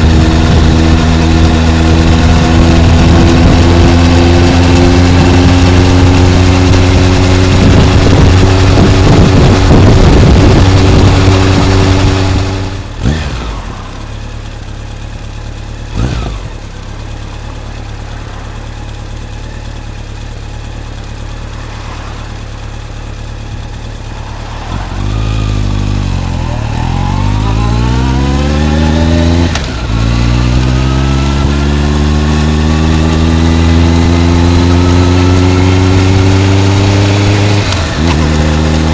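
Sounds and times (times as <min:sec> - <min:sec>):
wind noise: 0:00.0 - 0:13.2
motorcycle engine: 0:00.0 - 0:38.9.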